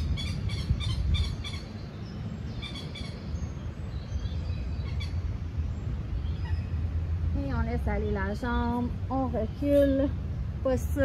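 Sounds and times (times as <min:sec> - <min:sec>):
birds chirping: 0:00.0 - 0:11.0
steady low rumble: 0:00.0 - 0:11.0.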